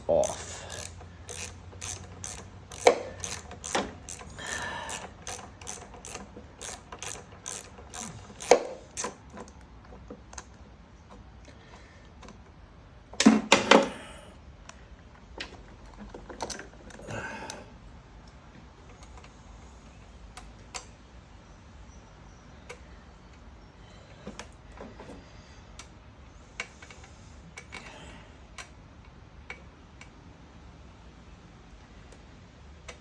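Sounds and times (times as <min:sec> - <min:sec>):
hand tools clicking and clinking: 0:00.2 - 0:09.2.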